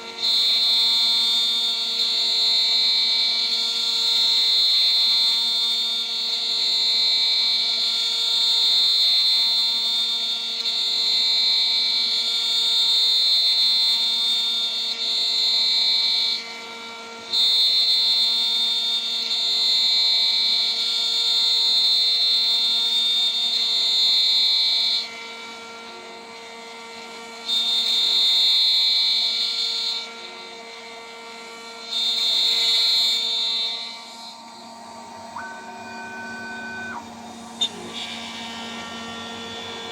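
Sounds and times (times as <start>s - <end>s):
high-pitched milling whine: 30.8s - 39.9s
spindle motor hum: 34.8s - 39.9s.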